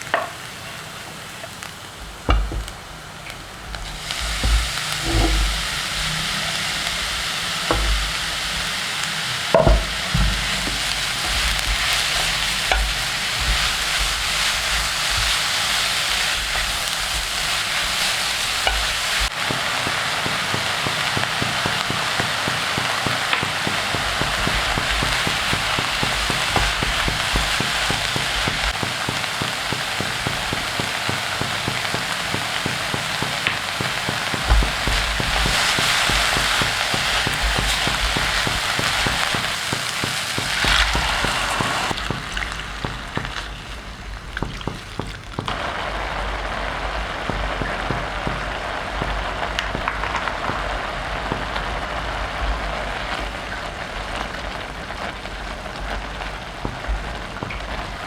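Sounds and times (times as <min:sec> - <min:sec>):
food sizzling in a pan: 0:00.0 - 0:58.0
utensil knocking against pan: 0:02.2 - 0:02.9, 0:03.8 - 0:05.8, 0:07.7 - 0:08.4, 0:09.6 - 0:15.4, 0:16.1 - 0:43.6.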